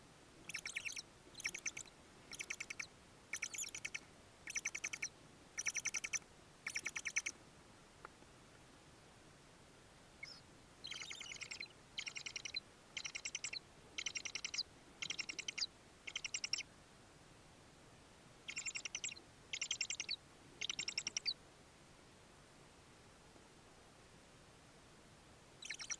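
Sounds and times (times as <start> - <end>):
bird chattering trills: 0.5 - 7.3, 10.2 - 16.6, 18.5 - 21.3, 25.6 - 25.9.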